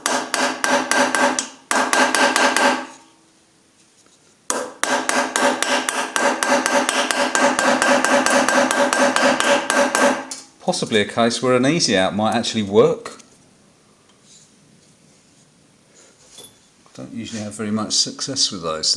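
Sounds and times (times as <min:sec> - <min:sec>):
hammer tapping chisel on metal: 0:00.0 - 0:03.0, 0:04.5 - 0:10.5.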